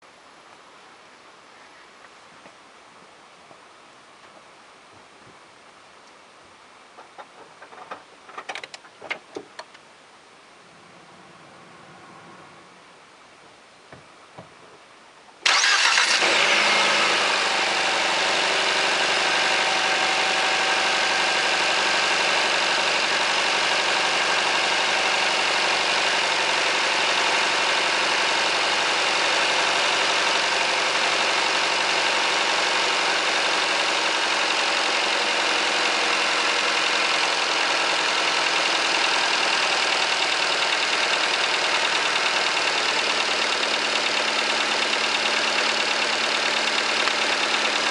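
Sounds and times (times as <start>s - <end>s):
car engine starting and idling: 15.4s - 47.9s
engine knock: 19.0s - 47.9s.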